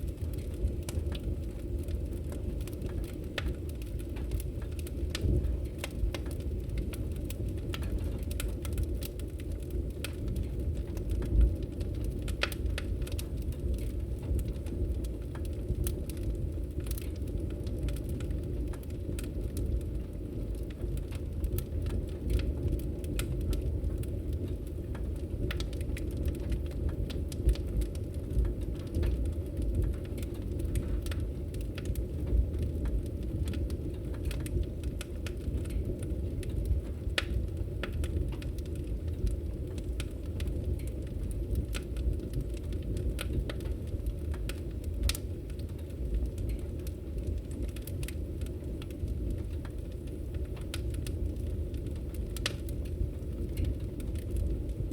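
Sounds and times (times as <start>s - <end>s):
low rumble of flames: 0.0s - 54.9s
wood fire crackling: 0.0s - 54.9s.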